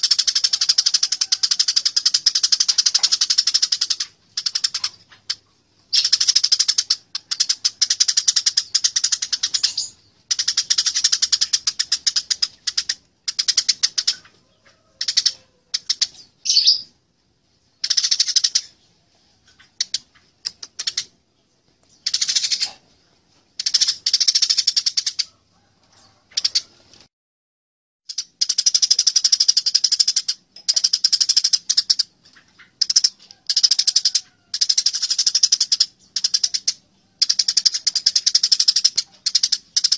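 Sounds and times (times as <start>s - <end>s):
sparrows harsh chirping: 0.0s - 25.3s, 28.1s - 39.9s.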